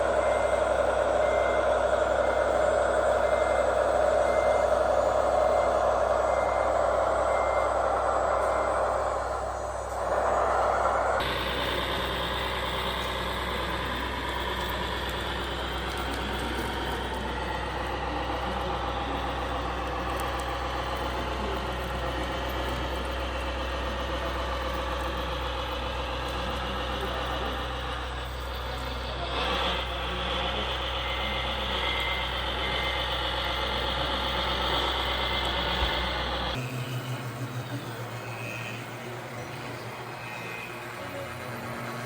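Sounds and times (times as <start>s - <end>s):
reversing beep: 0.0s - 23.0s
toy truck engine sound: 0.0s - 42.0s.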